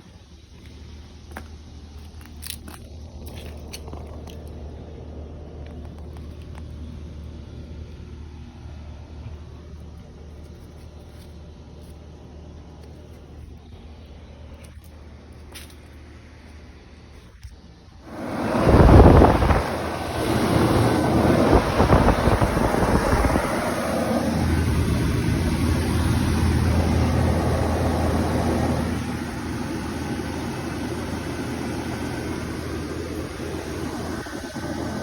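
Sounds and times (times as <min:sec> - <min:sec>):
air conditioner units humming: 0:00.0 - 0:35.0
loud rush: 0:18.1 - 0:30.4.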